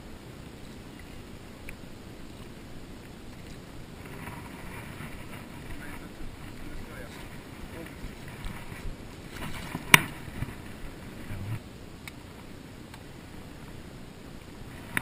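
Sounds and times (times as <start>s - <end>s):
wind rumbling on microphone: 0.0s - 15.0s
soft rustles: 0.3s - 11.6s.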